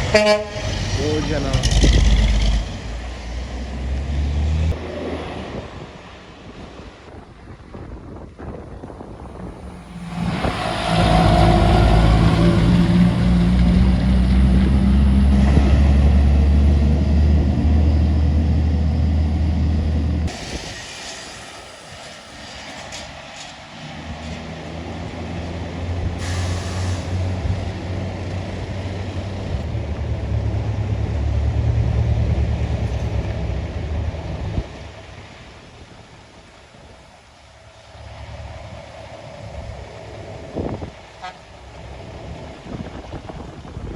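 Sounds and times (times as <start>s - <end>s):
diesel trucks passing: 0.0s - 43.9s
air brake hisses: 20.3s - 23.5s, 26.2s - 27.4s.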